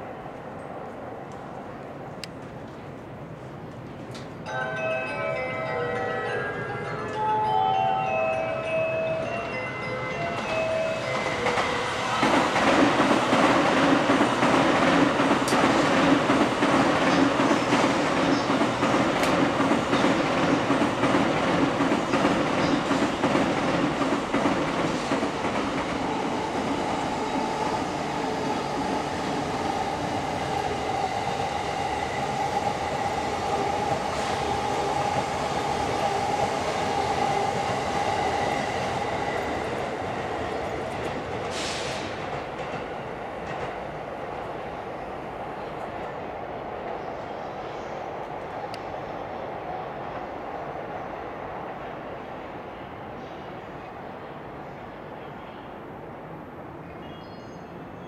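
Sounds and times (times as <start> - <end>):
train wheels rumbling on rail: 8.2 - 53.8
short hiss: 41.5 - 42.1.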